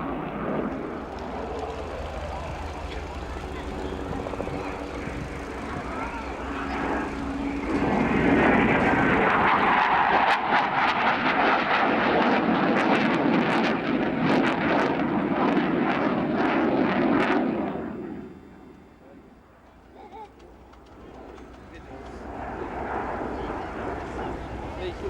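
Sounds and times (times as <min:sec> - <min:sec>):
jet flying past: 0:00.0 - 0:19.6, 0:20.5 - 0:25.0.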